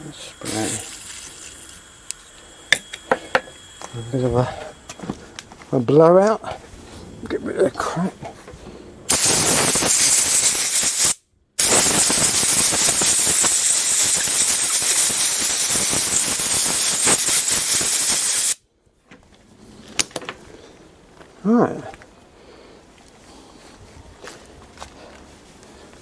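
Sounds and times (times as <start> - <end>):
compressed air hissing: 0.0 - 5.4, 9.1 - 18.6.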